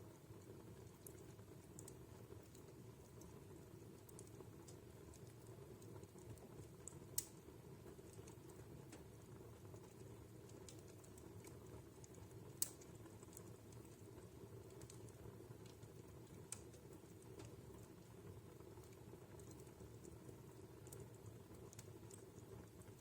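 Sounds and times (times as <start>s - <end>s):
fire crackling: 0.0s - 23.0s
fire sharp pops: 6.8s - 7.4s, 12.6s - 13.9s.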